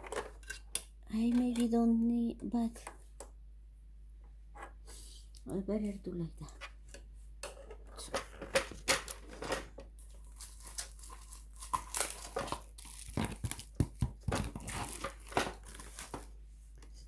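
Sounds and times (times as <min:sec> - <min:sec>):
hands handling machine parts: 0:07.4 - 0:17.0.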